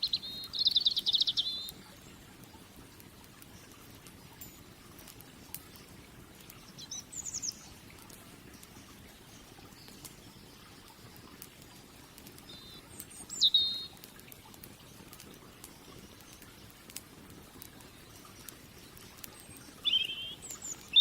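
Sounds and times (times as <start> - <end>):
small bird chirping: 0.0 - 1.8, 6.6 - 7.8, 12.4 - 14.0, 19.0 - 21.0
wood fire crackling: 0.0 - 21.0.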